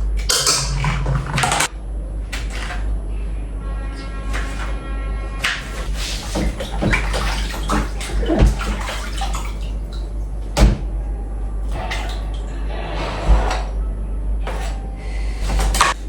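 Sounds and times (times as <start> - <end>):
tap water running into sink: 0.0 - 1.7
knocks against sink: 10.6 - 10.9.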